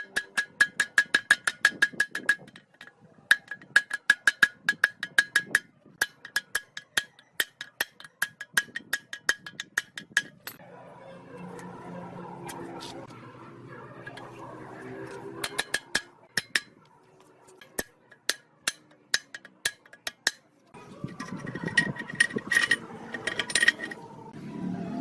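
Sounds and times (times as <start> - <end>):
hammer tapping on metal: 0.0 - 10.6, 15.4 - 16.8, 17.6 - 20.5.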